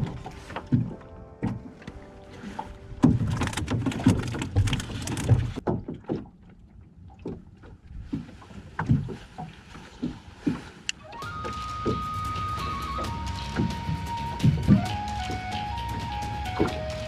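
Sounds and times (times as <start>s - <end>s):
water splashing around a boat: 0.0s - 17.0s.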